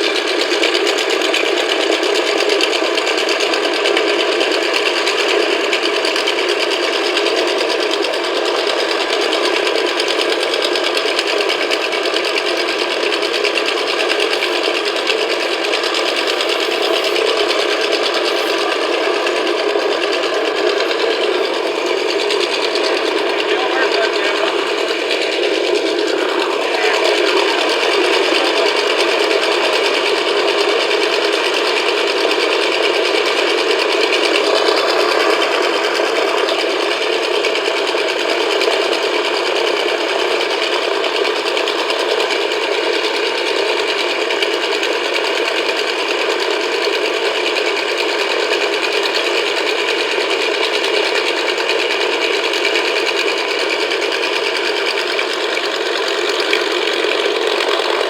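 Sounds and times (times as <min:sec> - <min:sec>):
radial aircraft engine running: 0:00.0 - 0:58.0.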